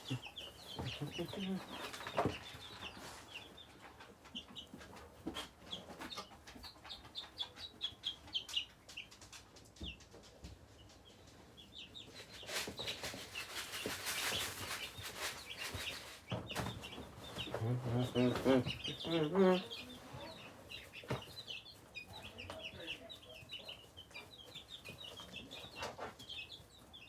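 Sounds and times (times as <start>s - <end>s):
chicks and ducklings peeping: 0.0s - 27.0s
rustling scratching noise: 12.1s - 20.6s.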